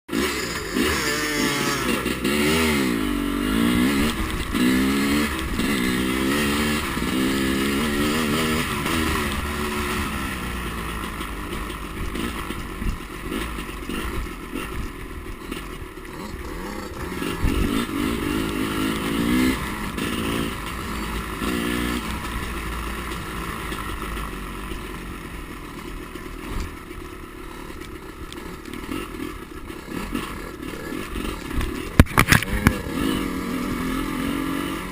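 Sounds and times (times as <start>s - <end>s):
dirt bike engine revving: 0.1s - 34.9s.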